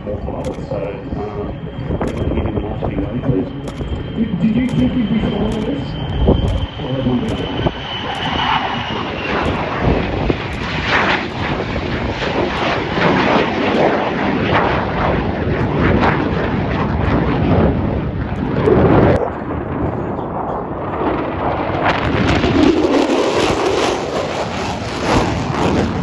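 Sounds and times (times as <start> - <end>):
jet engine roaring: 0.0 - 26.0.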